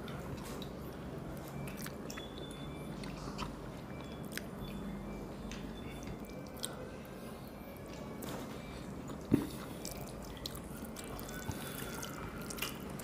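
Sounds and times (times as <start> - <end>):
people chewing and biting: 9.0 - 13.0.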